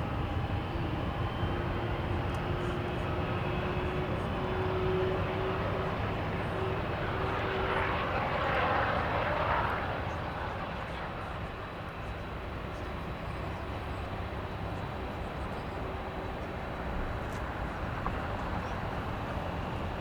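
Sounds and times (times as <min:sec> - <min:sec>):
jet engines rumbling and whining: 0:00.0 - 0:20.0.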